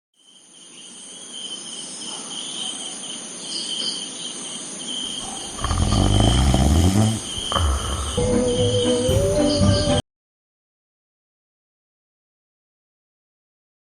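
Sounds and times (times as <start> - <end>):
insect chirring: 0.2 - 10.0.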